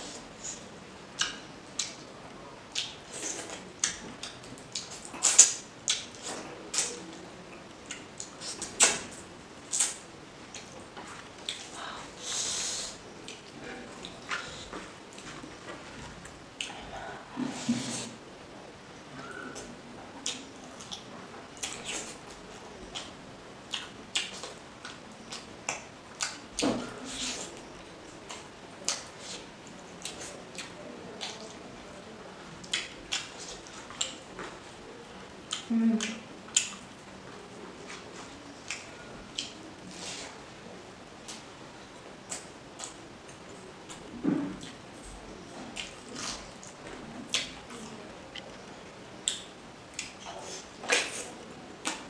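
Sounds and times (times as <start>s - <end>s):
close-miked eating sounds: 0.0s - 52.0s
wet chewing clicks and smacks: 2.7s - 7.0s, 35.5s - 36.8s, 49.2s - 52.0s.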